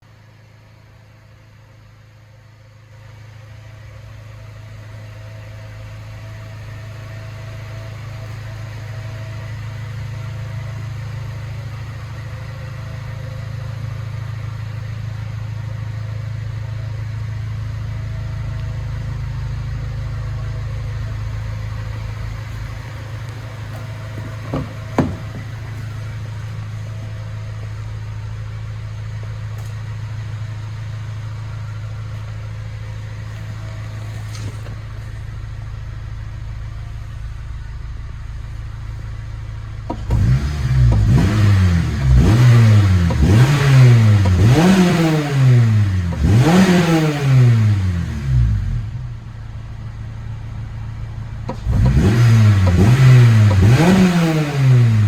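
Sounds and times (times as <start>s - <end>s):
car engine idling: 0.0s - 55.0s
sharp knocks: 22.2s - 26.0s.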